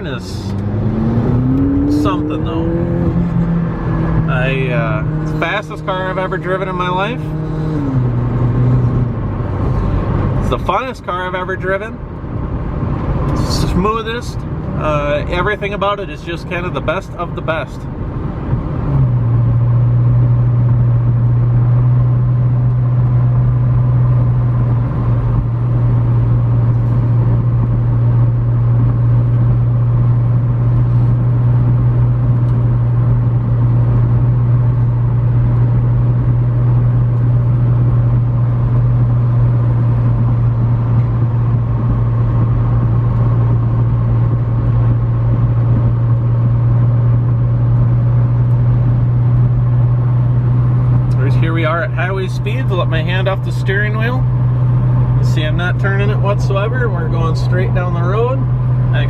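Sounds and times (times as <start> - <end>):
car engine droning: 0.0 - 59.0
road and wind noise: 0.0 - 59.0.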